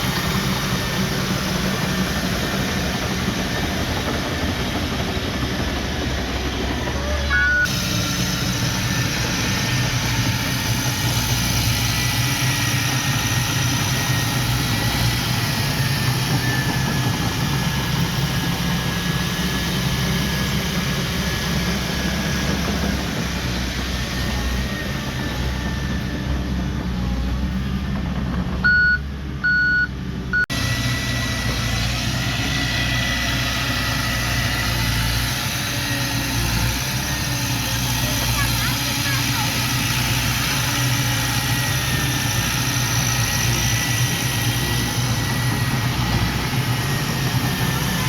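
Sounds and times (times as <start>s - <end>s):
heavy diesel machinery running: 0.0s - 48.0s
reversing alarm beeps: 7.3s - 7.7s, 28.6s - 30.5s.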